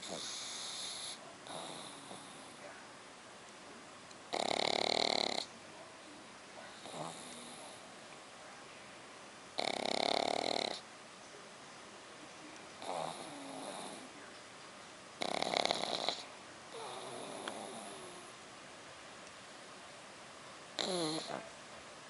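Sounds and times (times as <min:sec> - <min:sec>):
dog snoring: 0:00.0 - 0:02.6, 0:04.3 - 0:05.5, 0:06.7 - 0:07.8, 0:09.6 - 0:10.8, 0:12.8 - 0:14.2, 0:15.2 - 0:18.3, 0:20.8 - 0:21.5
dog breathing softly: 0:00.0 - 0:02.7.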